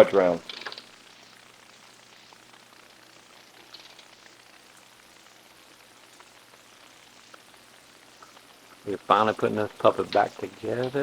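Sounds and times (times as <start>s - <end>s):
faint steady hiss: 0.0s - 11.0s
low electrical hum: 0.0s - 11.0s.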